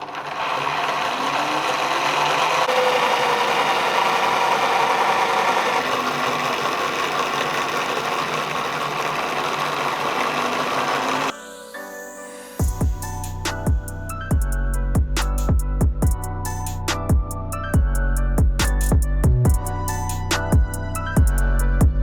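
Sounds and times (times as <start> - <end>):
wood chipper whirring: 0.0 - 11.3.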